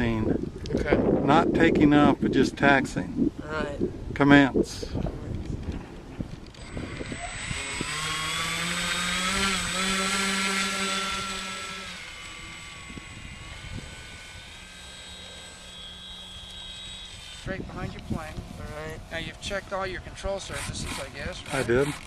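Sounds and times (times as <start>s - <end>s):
electric motor and propeller whine: 5.0s - 22.0s.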